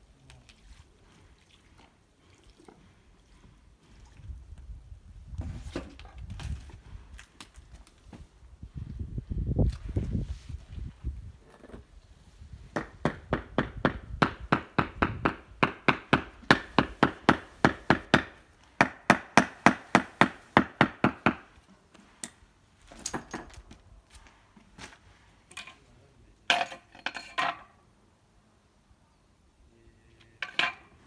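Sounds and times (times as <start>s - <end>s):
hammer tapping on stone: 12.8s - 21.5s.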